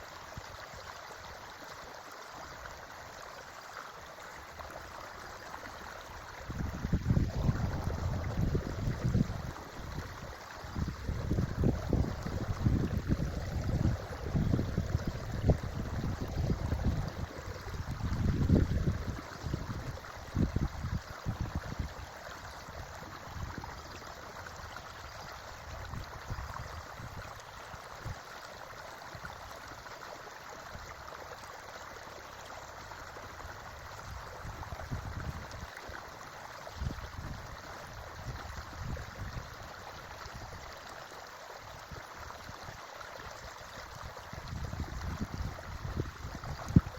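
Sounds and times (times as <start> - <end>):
creek water running over stones: 0.0 - 46.9
wind buffeting microphone: 6.4 - 24.0, 34.1 - 35.7, 44.3 - 46.9.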